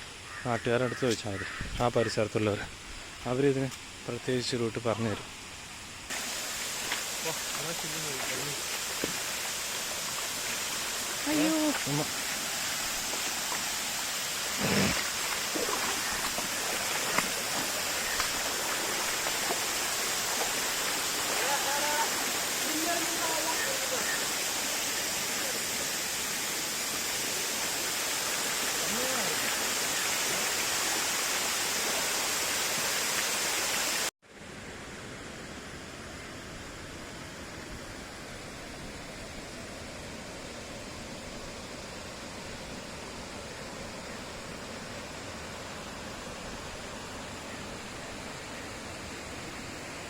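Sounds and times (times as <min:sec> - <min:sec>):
dull rushing hiss: 0:00.0 - 0:50.0
waterfall rushing: 0:06.1 - 0:34.1.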